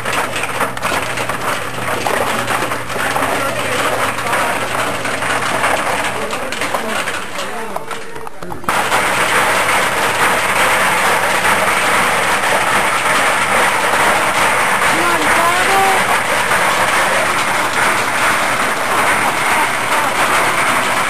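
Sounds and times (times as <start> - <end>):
loud steady whirring machine: 0.0 - 21.0
person speaking: 14.9 - 16.1.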